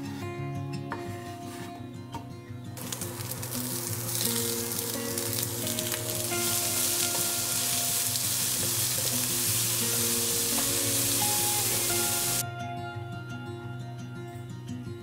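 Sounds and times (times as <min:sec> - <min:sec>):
meat and onion sizzling in a pan: 0:02.8 - 0:12.4.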